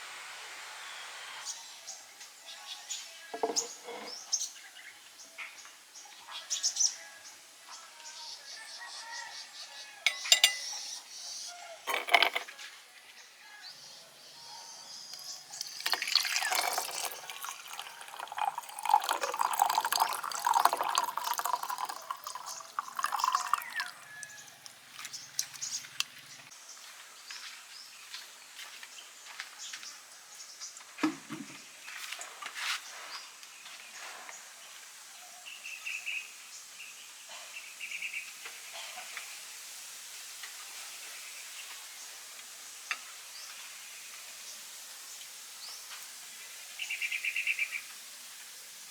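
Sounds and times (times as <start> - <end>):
soft steady hiss: 0.0 - 48.9
water running and splashing: 15.2 - 26.5.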